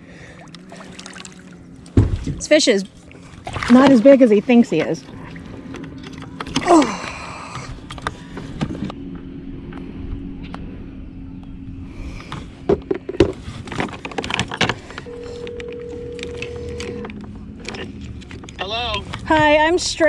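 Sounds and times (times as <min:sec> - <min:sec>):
faint low hum: 0:00.0 - 0:13.8
clicks and knocks of gear: 0:12.2 - 0:19.5
phone ringback tone: 0:15.1 - 0:17.0.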